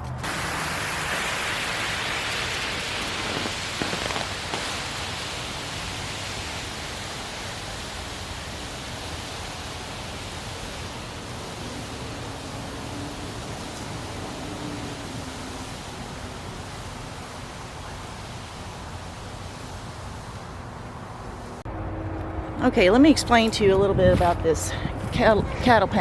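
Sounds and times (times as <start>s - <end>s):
tarp dragged across ground: 0.0s - 5.3s.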